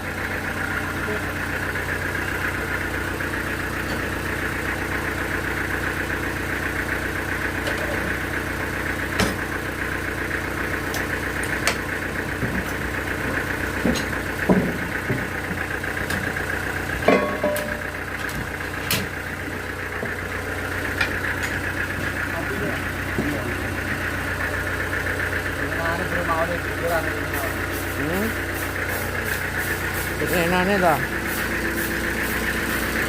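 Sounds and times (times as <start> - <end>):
band sawmill running: 0.0 - 33.0.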